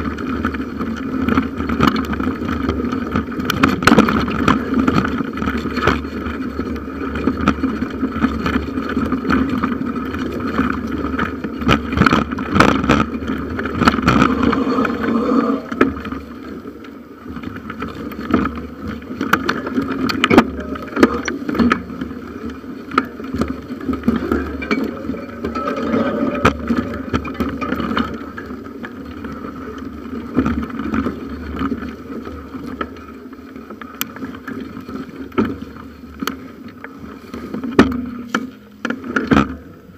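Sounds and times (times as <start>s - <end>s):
bicycle rattles over bumps: 0.0s - 39.9s
bicycle tyre noise: 0.0s - 39.9s
wind on microphone: 13.5s - 16.7s.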